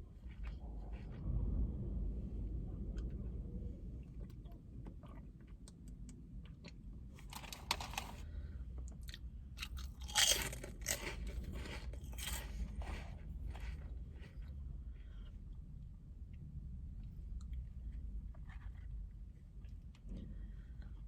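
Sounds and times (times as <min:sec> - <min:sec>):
person chewing crunchy food: 0:09.0 - 0:14.6.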